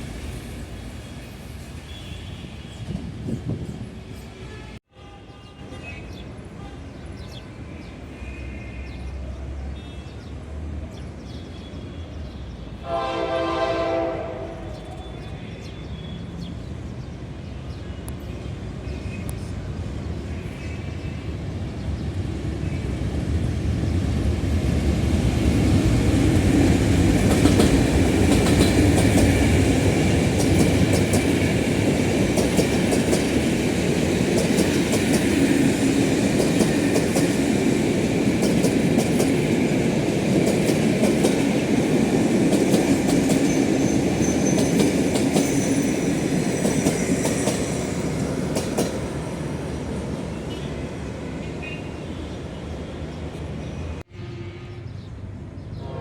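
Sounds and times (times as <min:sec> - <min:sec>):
train rumble: 0:16.4 - 0:51.8
train wheels clicking over rails: 0:23.2 - 0:49.9.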